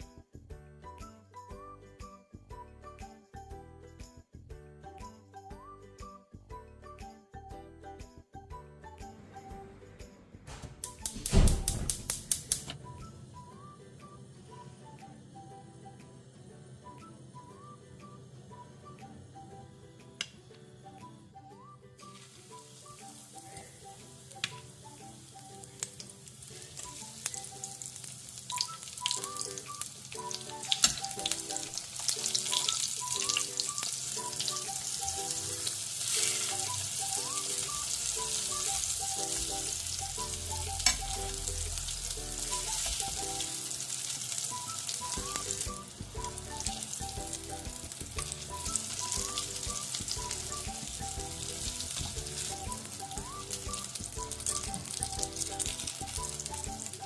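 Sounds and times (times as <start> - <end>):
soft background music: 0.0 - 57.0
eggplant slices sizzling in oil: 10.8 - 12.8, 22.0 - 57.0.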